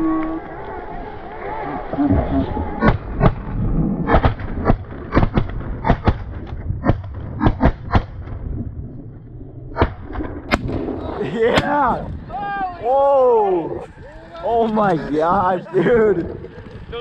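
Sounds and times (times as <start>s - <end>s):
shotgun fire: 9.8s - 12.1s.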